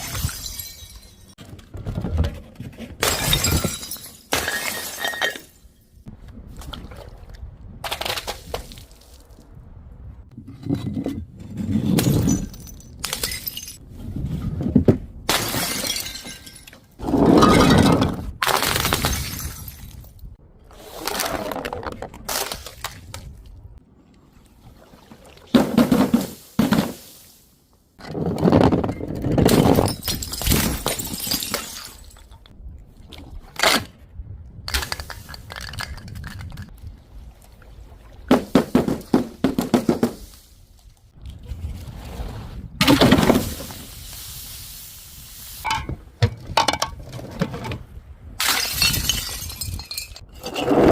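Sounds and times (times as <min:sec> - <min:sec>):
glass bottles and jars shattering: 0:00.0 - 0:01.4, 0:03.0 - 0:05.9, 0:12.0 - 0:13.8, 0:15.3 - 0:20.3, 0:28.8 - 0:32.4, 0:48.4 - 0:50.6.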